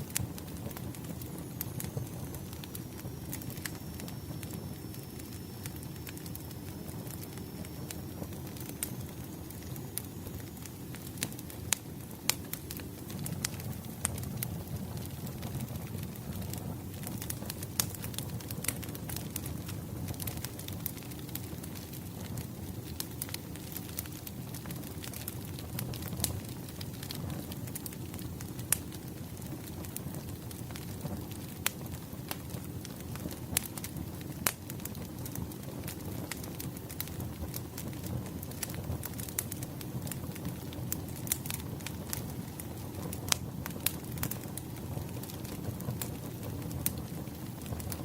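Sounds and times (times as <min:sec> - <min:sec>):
logs crackling and popping: 0:00.0 - 0:48.0
wood fire rushing: 0:00.0 - 0:48.0
faint high whistle: 0:01.6 - 0:10.6.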